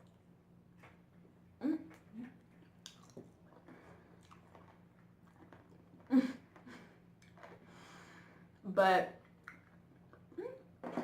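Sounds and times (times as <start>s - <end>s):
person chewing and biting food: 2.6s - 6.0s.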